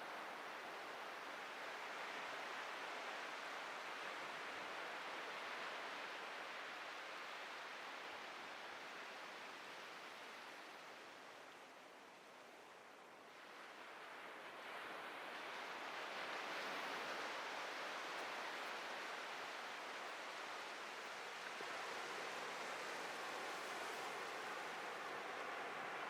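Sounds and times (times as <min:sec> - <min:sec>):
waves breaking on beach: 0:13.4 - 0:26.0.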